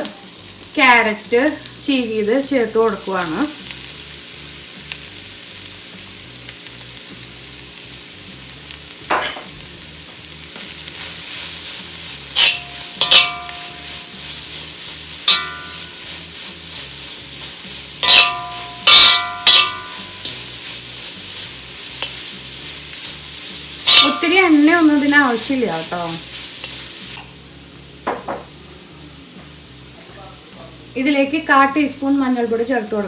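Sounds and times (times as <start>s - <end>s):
vegetables sizzling in a wok: 0.0s - 33.0s
metal spatula clinking against pan: 12.4s - 13.9s, 15.3s - 16.0s, 18.0s - 20.4s, 23.9s - 24.5s.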